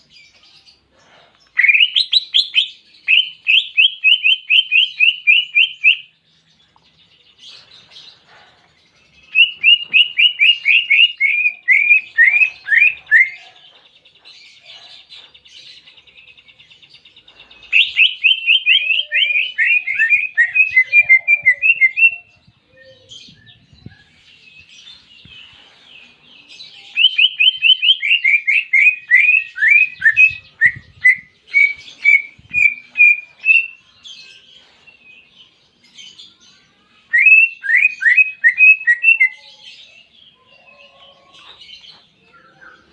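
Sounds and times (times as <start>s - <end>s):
bird singing rapid falling chirps: 9.1s - 13.4s, 16.0s - 34.5s.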